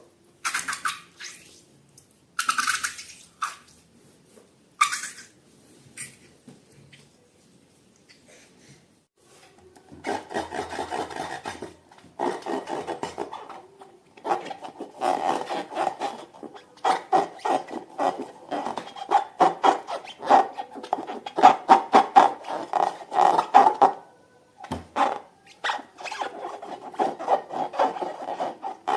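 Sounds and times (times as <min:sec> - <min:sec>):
rubber balloons squeaking: 0:09.9 - 0:24.0, 0:24.6 - 0:28.9.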